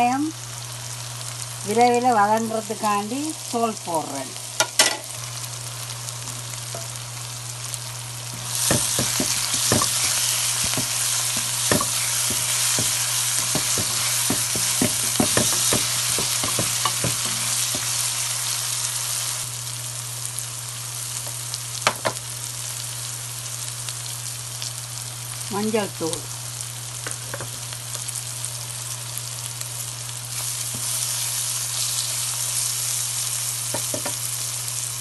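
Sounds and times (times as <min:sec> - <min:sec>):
vegetables sizzling in oil: 0:00.0 - 0:35.0
spoon scraping and knocking pan: 0:08.4 - 0:18.0, 0:33.7 - 0:34.2.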